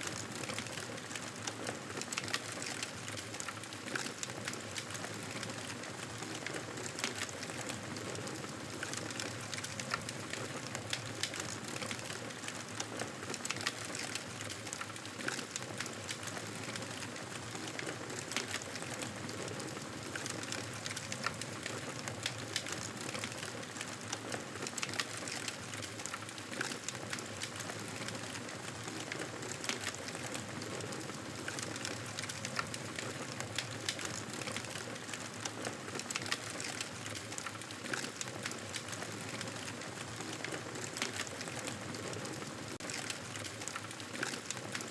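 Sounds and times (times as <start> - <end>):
campfire crackling and popping: 8.8 - 42.2.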